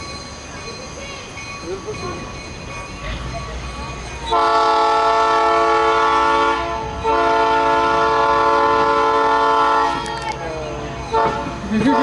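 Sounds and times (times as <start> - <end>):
locomotive air horn blasts: 4.3 - 10.1, 11.1 - 12.0.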